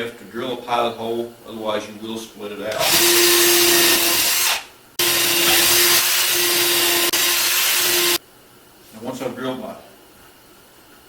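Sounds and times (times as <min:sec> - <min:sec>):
power drill drilling: 0:02.8 - 0:08.2.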